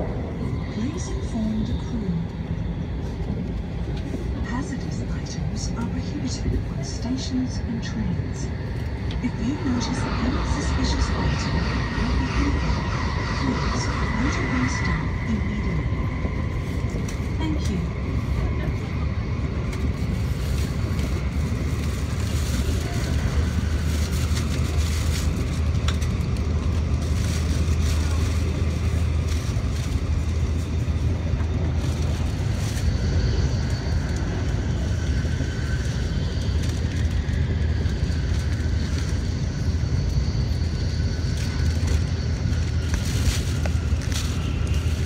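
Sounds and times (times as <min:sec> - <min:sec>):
high steady whine: 0:00.0 - 0:45.0
train cabin rumble: 0:00.0 - 0:45.0.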